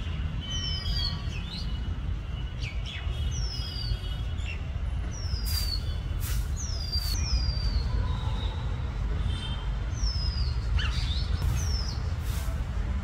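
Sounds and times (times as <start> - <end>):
birds whistling downward: 5.2 - 7.8.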